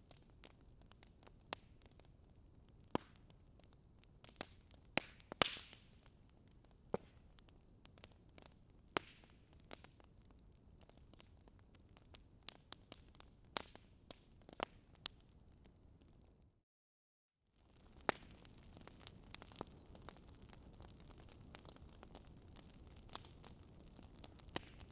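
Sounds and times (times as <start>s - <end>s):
wood fire crackling: 0.0s - 16.4s, 17.6s - 24.9s.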